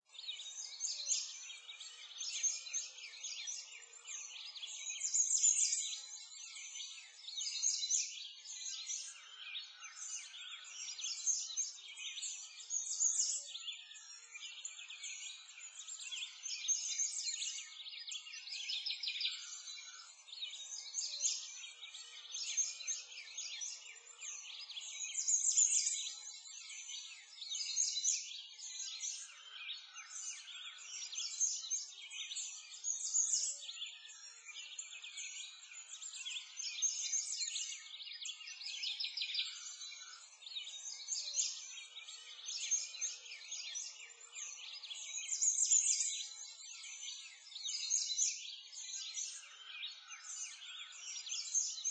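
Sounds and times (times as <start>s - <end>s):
chorus of birds chirping: 0.0s - 51.9s.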